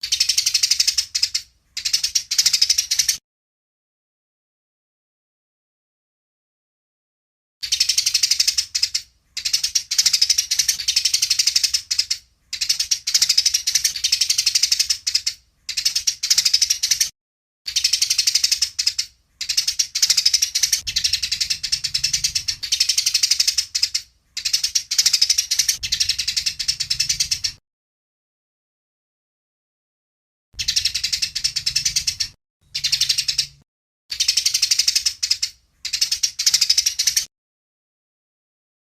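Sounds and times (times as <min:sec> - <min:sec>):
sparrows chattering harshly: 0:00.0 - 0:03.2, 0:07.6 - 0:17.1, 0:17.7 - 0:27.6, 0:30.6 - 0:37.3.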